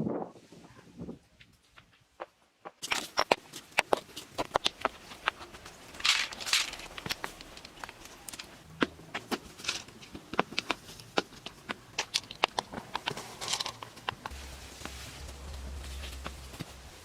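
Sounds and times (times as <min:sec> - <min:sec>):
low steady hum: 0:04.2 - 0:17.0
sharp clicks and taps: 0:10.1 - 0:14.3.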